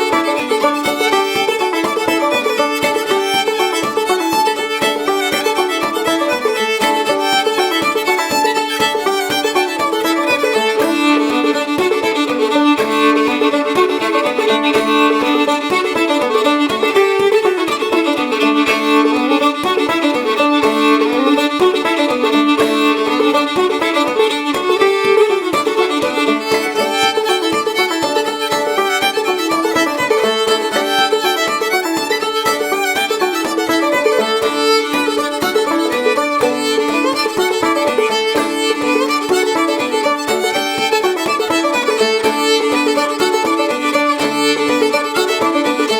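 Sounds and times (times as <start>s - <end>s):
banjo picking: 0.0s - 45.9s
fiddle melody: 0.0s - 45.9s.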